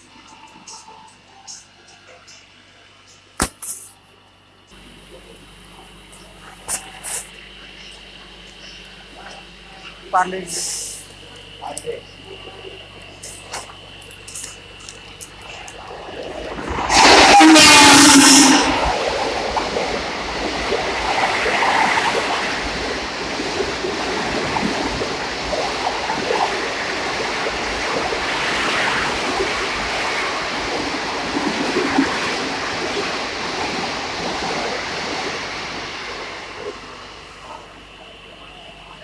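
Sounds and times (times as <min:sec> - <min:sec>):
train rushing rumble: 0:15.4 - 0:38.8.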